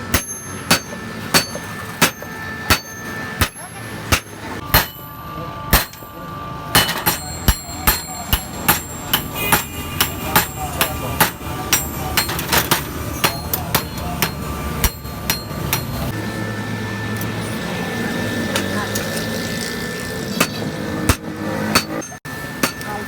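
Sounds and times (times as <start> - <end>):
hammer striking steel on anvil: 0.0 - 16.2, 20.3 - 23.0
steady low hum: 0.0 - 23.0.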